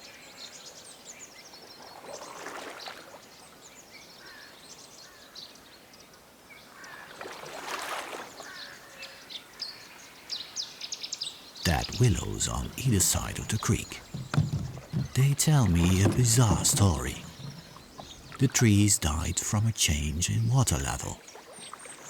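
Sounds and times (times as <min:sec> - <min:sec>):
paddle splashing in water: 0:02.0 - 0:03.2, 0:07.2 - 0:08.4, 0:11.7 - 0:22.0.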